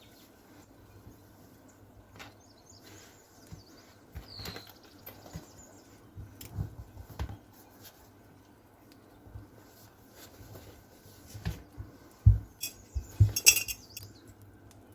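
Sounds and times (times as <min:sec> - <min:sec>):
objects tapping and clicking: 0:12.3 - 0:14.8.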